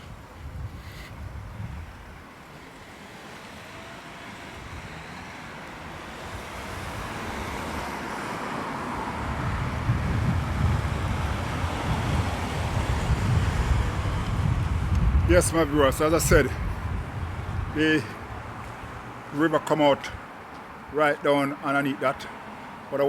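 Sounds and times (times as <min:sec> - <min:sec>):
wind buffeting microphone: 0:00.0 - 0:02.4, 0:04.5 - 0:19.3
outdoor rushing noise: 0:00.0 - 0:23.0.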